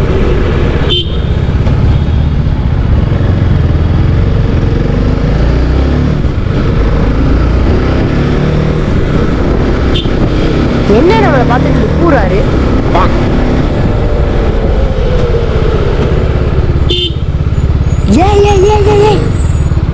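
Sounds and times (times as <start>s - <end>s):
motorcycle engine running: 0.0s - 14.6s, 15.3s - 19.9s
wind rush on microphone: 6.1s - 16.8s.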